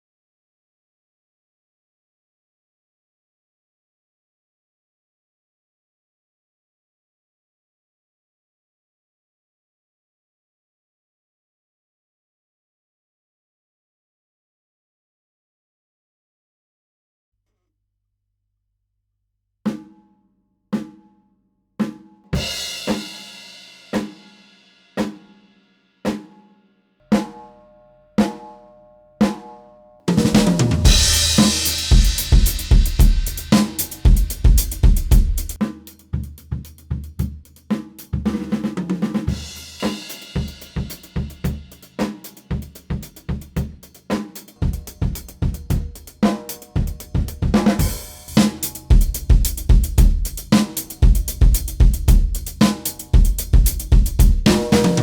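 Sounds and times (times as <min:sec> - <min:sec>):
full drum beat: 0:21.8 - 0:25.4, 0:30.1 - 0:55.0
drum strokes: 0:22.4 - 0:24.4, 0:30.1 - 0:55.0
cymbal ringing: 0:27.0 - 0:34.8, 0:47.8 - 0:48.9.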